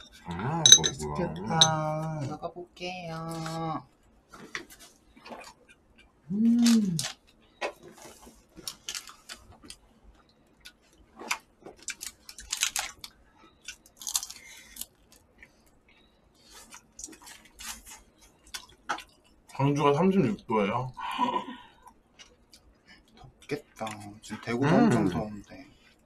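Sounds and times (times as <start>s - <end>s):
person chewing food: 4.7s - 6.2s, 6.9s - 19.5s, 21.8s - 23.5s
person humming: 6.3s - 7.1s.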